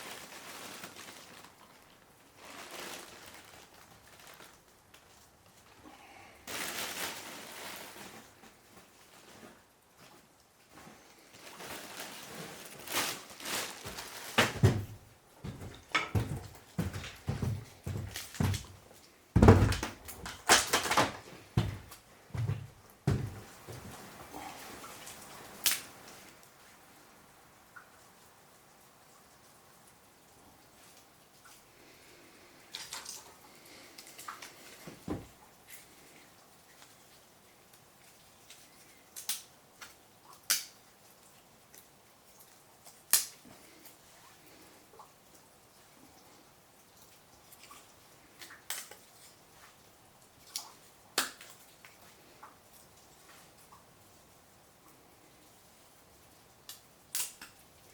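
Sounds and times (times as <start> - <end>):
scraping rustle: 0.0 - 5.2, 6.5 - 18.8
wood fire crackling: 0.0 - 28.3, 56.4 - 57.9
knocks and thuds of handling: 13.8 - 18.8, 19.4 - 24.0, 34.8 - 35.4.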